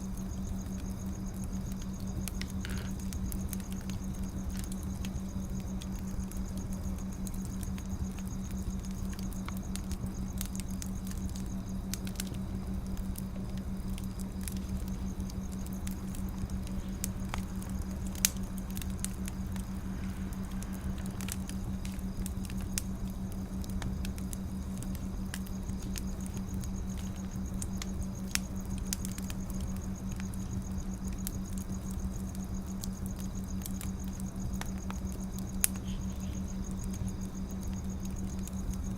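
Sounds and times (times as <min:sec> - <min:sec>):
firewood crackling and popping: 0:00.0 - 0:38.9
low hum: 0:11.0 - 0:31.9.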